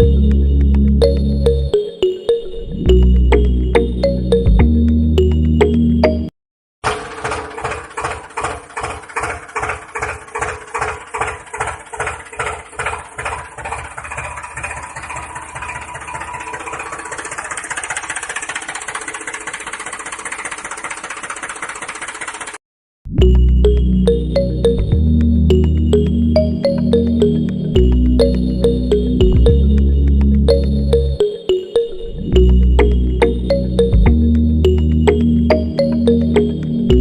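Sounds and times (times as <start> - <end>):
small engine chugging: 6.8 - 22.6.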